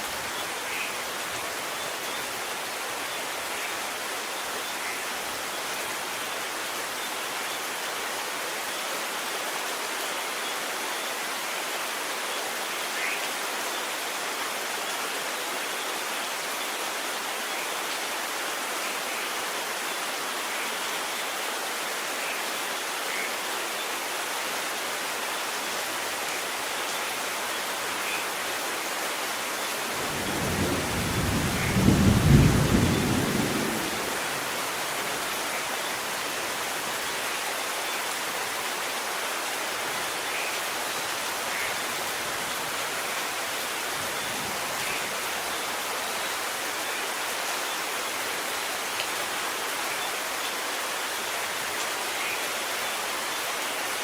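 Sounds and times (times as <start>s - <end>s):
steady rain falling: 0.0s - 54.0s
thunder rumbling: 30.0s - 34.5s.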